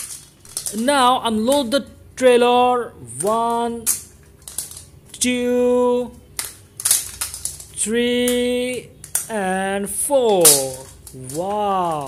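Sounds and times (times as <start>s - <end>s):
plastic clicks and clatter: 3.9s - 4.9s, 6.3s - 8.4s, 9.0s - 12.0s.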